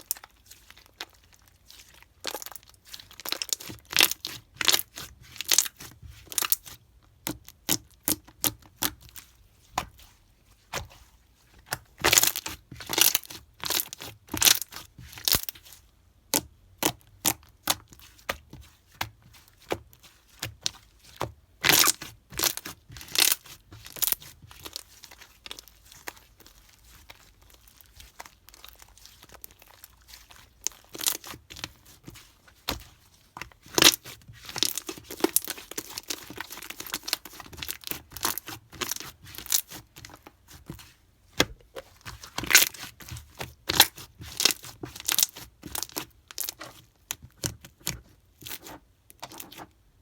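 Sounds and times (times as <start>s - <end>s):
slime crackling and popping: 0.0s - 9.1s, 11.7s - 15.6s, 21.6s - 32.8s, 33.4s - 40.6s, 41.4s - 49.6s.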